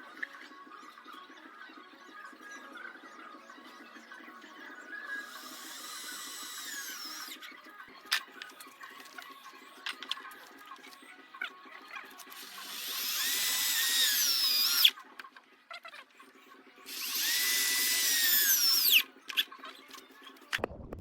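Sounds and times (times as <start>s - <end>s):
electric drill whine: 5.0s - 7.5s, 12.3s - 14.9s, 16.9s - 19.0s.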